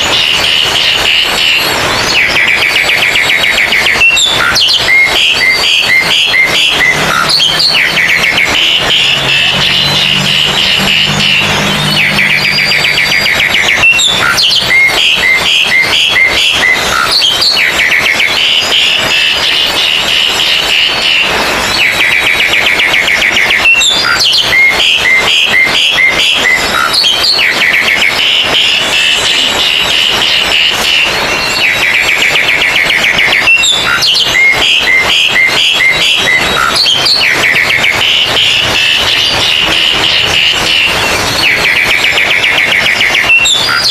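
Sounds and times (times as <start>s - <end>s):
songbirds singing: 0.0s - 19.0s.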